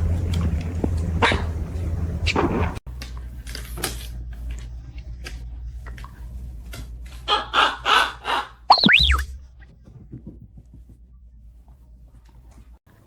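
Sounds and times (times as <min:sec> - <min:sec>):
parrot squawking: 0:07.3 - 0:09.2
parrot whistle: 0:08.7 - 0:09.3.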